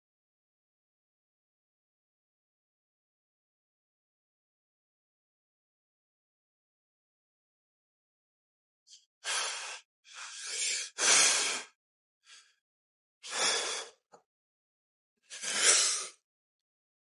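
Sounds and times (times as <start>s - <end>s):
man breathing out hard: 13.2s - 14.0s, 15.4s - 16.2s.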